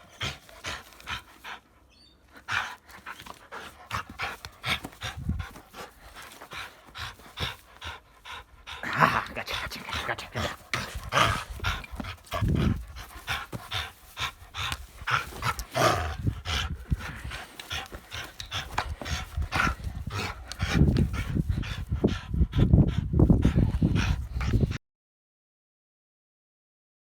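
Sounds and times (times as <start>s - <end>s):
dog panting: 0.0s - 24.8s.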